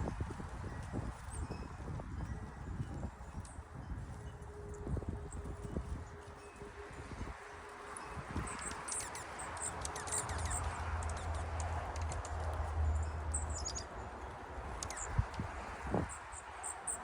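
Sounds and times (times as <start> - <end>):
songbirds chirping: 8.4 - 17.0.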